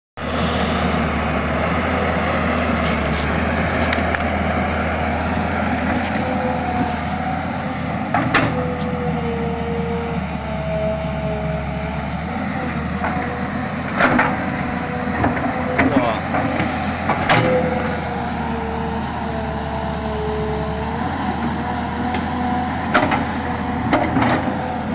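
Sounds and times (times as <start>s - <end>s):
excavator diesel engine running: 0.2s - 24.9s.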